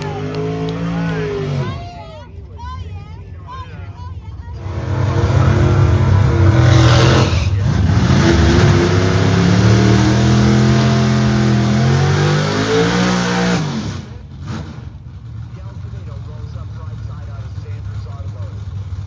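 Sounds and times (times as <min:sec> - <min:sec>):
drag race car engine at full throttle: 0:00.0 - 0:19.0.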